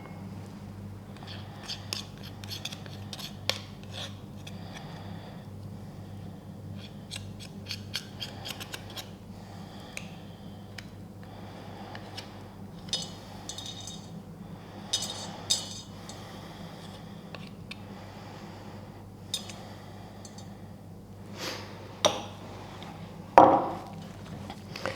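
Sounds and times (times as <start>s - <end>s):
steady low hum: 0.0s - 24.9s
spoon scraping and clicking container: 12.1s - 14.1s, 19.3s - 19.6s, 20.2s - 20.5s.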